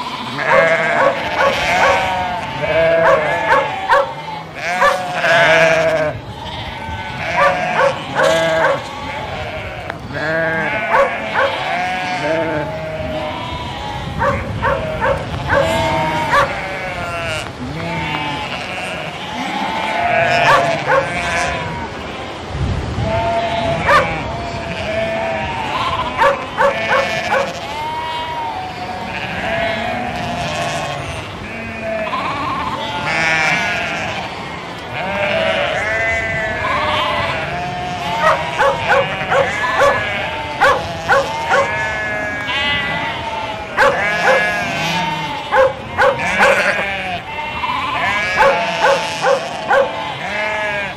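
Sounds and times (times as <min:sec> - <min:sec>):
sheep bleating: 0:00.0 - 0:22.4, 0:23.0 - 0:50.9
dog barking: 0:00.4 - 0:02.1, 0:02.9 - 0:05.1, 0:07.3 - 0:08.8, 0:10.8 - 0:11.7, 0:14.2 - 0:16.6, 0:20.4 - 0:21.2, 0:23.9 - 0:24.2, 0:26.2 - 0:27.6, 0:38.2 - 0:41.8, 0:43.8 - 0:44.6, 0:45.5 - 0:46.8, 0:48.3 - 0:50.0.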